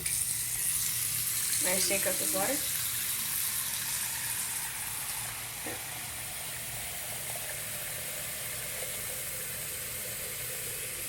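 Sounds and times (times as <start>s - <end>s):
tap running into sink: 5.6s - 6.0s.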